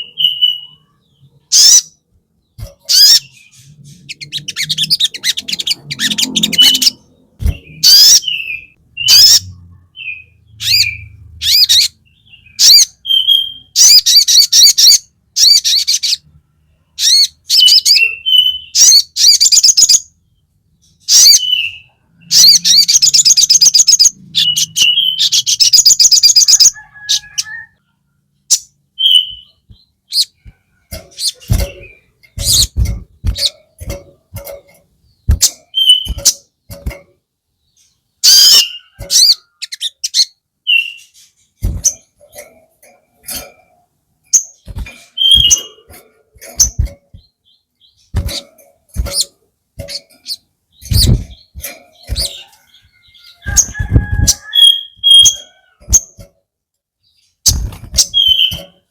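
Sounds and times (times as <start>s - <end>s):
sharp bird chips: 0.0s - 16.2s, 21.0s - 27.6s, 28.5s - 37.1s, 37.8s - 56.3s, 57.2s - 58.9s
songbird trilling: 2.6s - 16.2s, 31.1s - 36.4s, 38.2s - 41.1s, 49.9s - 55.5s
low thumps: 30.4s - 37.1s, 50.8s - 52.3s
whistled bird notes: 35.7s - 36.3s, 45.1s - 45.9s.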